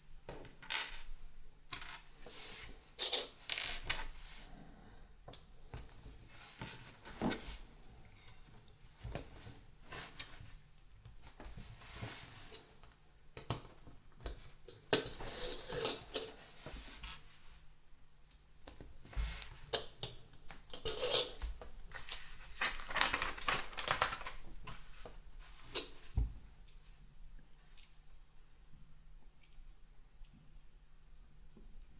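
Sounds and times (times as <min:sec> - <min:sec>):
plastic pieces rustling: 0:22.5 - 0:24.5.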